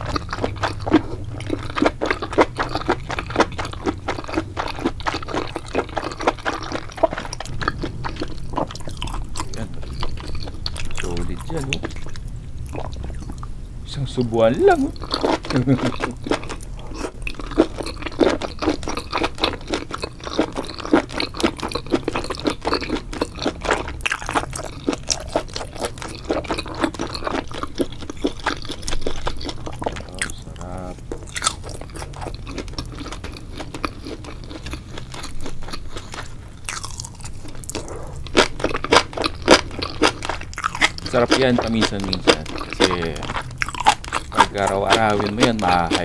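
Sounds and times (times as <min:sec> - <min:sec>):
person chewing wet crunching: 0:00.0 - 0:46.0.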